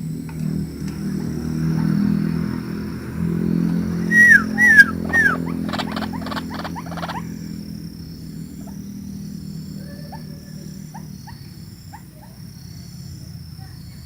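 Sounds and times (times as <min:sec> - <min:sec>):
faint short bird notes: 0:04.0 - 0:07.2
thin high bird tones: 0:04.0 - 0:07.2
waterhen calling harshly: 0:04.0 - 0:07.2.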